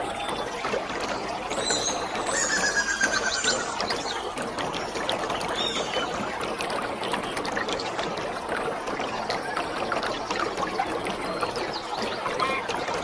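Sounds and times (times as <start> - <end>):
waterfall rushing: 1.3 - 6.8
short high chirps: 1.5 - 4.3.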